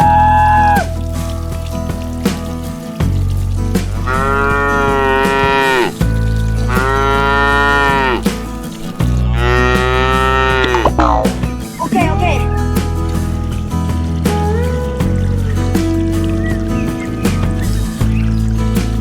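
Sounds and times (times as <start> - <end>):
cow mooing: 4.0 - 5.9, 6.7 - 8.2, 9.3 - 11.3.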